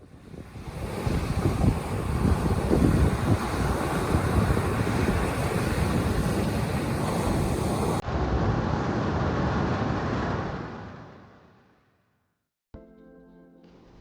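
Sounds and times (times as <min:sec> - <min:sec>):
wind: 0:00.0 - 0:11.7
surf: 0:00.4 - 0:11.3.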